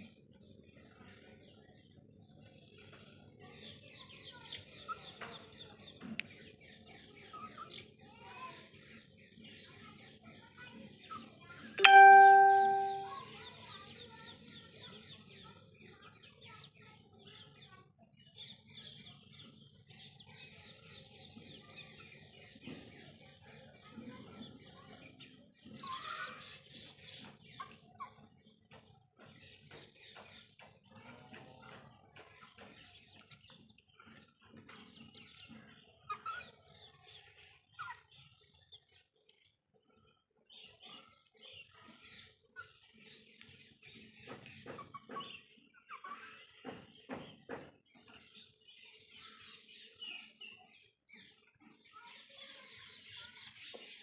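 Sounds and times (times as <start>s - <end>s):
sudden ringing tone: 11.8s - 13.2s
chickens clucking: 26.9s - 29.9s, 41.8s - 48.2s.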